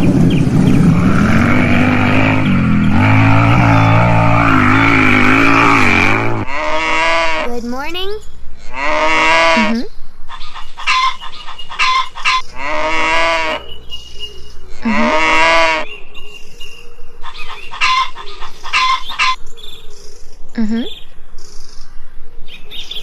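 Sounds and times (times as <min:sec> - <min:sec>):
farm animals calling: 0:00.7 - 0:07.6, 0:08.6 - 0:16.2, 0:17.2 - 0:19.4.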